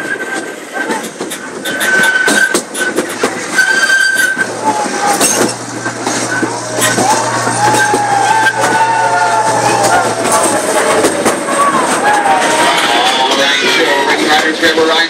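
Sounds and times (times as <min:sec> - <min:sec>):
wheels clicking over rail joints: 0:00.3 - 0:15.0
high-pitched wheel squeal: 0:01.3 - 0:14.0.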